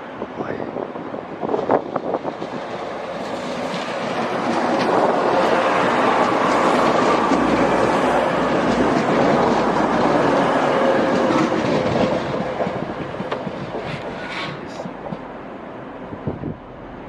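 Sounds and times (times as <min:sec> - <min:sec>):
train wheels clicking over rails: 0:02.0 - 0:15.3.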